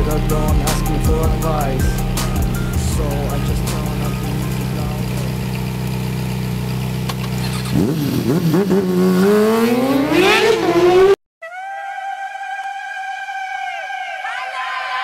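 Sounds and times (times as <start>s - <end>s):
vehicle engine revving: 0.0s - 11.2s.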